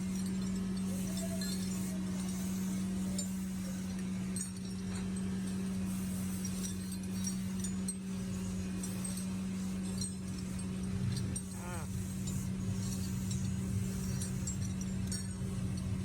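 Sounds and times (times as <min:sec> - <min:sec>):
metal parts clinking: 0:00.0 - 0:16.0
electric motor humming: 0:05.4 - 0:14.6.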